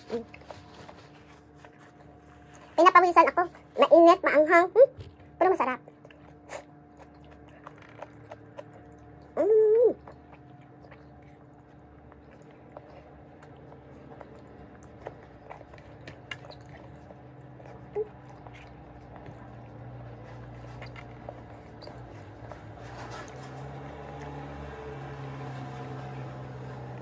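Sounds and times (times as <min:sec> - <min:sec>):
person chewing food: 0:00.0 - 0:03.8, 0:05.0 - 0:27.0
steady low hum: 0:00.0 - 0:27.0.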